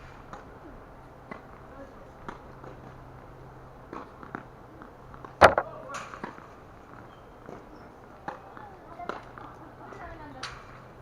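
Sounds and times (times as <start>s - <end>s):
tennis racket hitting ball: 5.4s - 5.8s.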